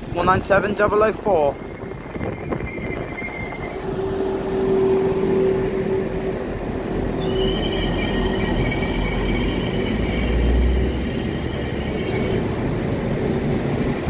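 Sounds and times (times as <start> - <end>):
train whine: 0.0 - 14.0
wheel and brake squeal: 1.4 - 6.4, 7.0 - 12.7.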